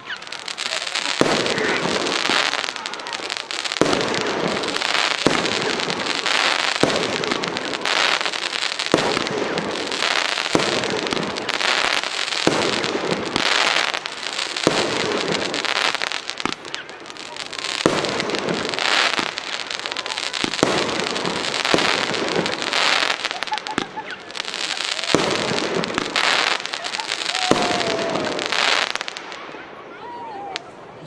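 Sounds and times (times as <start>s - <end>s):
firework crackling: 0.0s - 30.8s
firework launch bangs: 17.8s - 29.5s.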